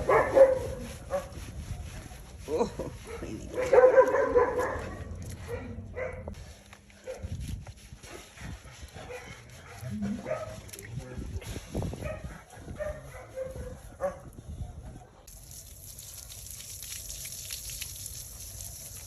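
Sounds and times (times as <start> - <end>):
dog barking and yipping: 0.0 - 1.4, 3.0 - 6.4, 9.0 - 10.6, 12.0 - 15.1.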